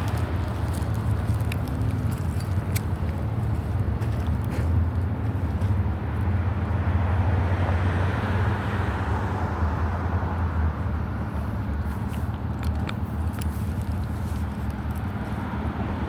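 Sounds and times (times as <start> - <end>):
steady low rumble: 0.0 - 7.2
vehicle passing by: 0.0 - 12.7.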